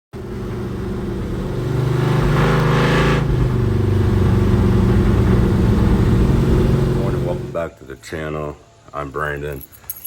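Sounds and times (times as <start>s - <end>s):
vehicle engine speeding up: 0.1s - 7.6s.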